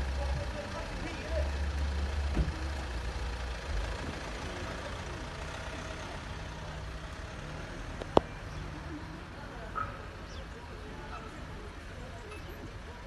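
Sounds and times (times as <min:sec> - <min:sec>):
car engine running: 0:00.0 - 0:08.6.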